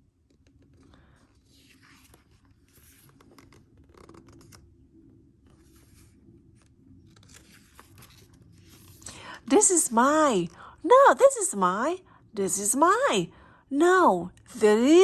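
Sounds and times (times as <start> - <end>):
book pages turning: 0.0 - 10.6.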